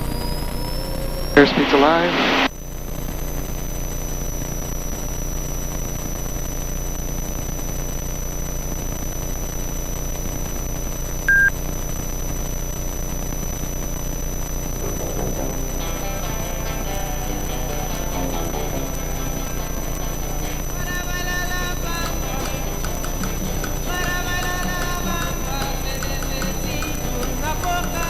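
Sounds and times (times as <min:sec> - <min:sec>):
short electronic beep: 0:11.3 - 0:11.6
aircraft piston engine drone: 0:14.7 - 0:28.0.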